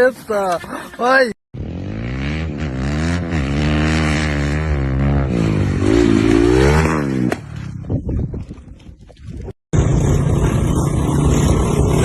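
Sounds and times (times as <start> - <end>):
engine running and revving: 1.6 - 8.1, 9.8 - 12.0.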